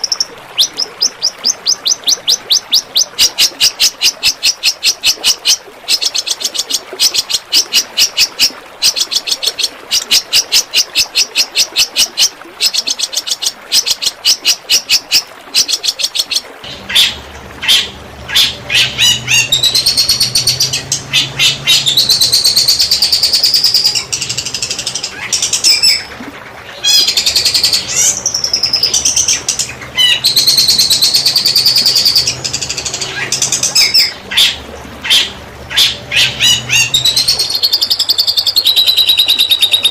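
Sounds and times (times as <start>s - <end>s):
low steady hum: 16.4s - 38.2s.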